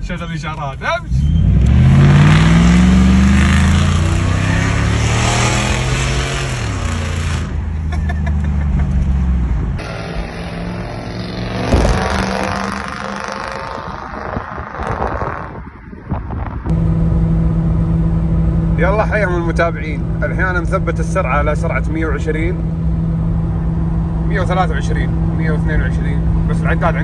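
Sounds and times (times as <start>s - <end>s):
steady driving noise: 0.0s - 27.0s
car engine accelerating hard: 1.1s - 15.6s.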